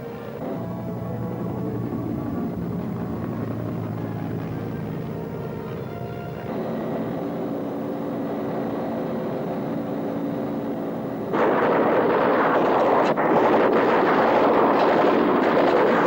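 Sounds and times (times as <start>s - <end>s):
background music with held notes: 0.0s - 11.3s
helicopter gunfire roar: 0.0s - 16.0s.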